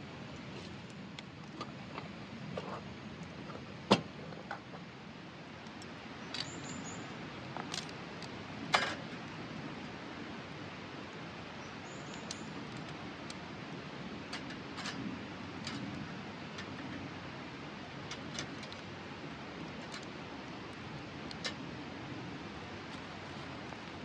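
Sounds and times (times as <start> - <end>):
campfire crackling and popping: 4.7 - 6.6, 7.2 - 24.0.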